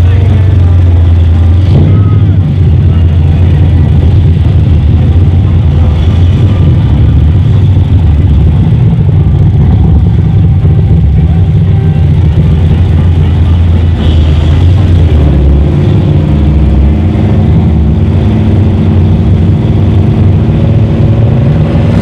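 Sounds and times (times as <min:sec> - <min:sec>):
race car engines idling loudly: 0:00.0 - 0:22.0.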